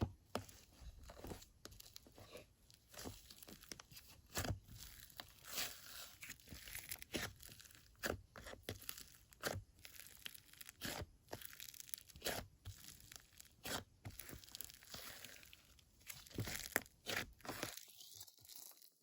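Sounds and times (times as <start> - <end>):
slime crackling and popping: 4.8 - 18.9.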